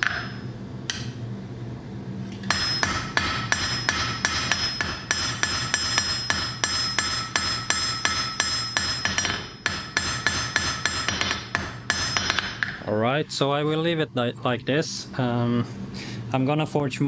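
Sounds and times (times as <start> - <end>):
hammer striking iron on anvil: 0.0 - 1.2, 2.4 - 12.8.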